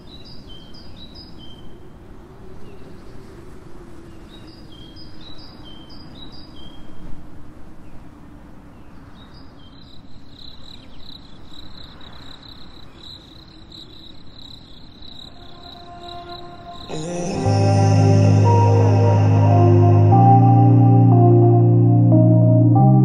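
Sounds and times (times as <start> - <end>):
birds chirping: 8.8 - 18.8
cricket trilling: 9.8 - 17.0.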